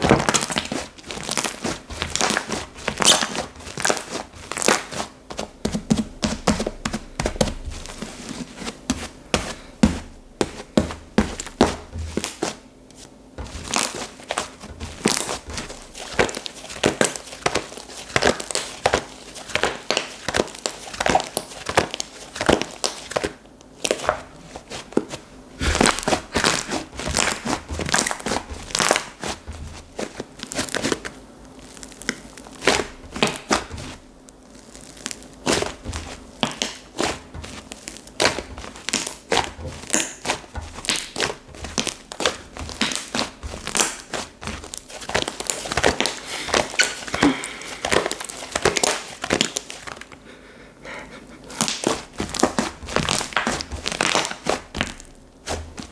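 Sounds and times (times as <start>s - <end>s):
slime squishing and popping: 0.0s - 5.0s, 25.6s - 50.0s, 51.6s - 55.9s.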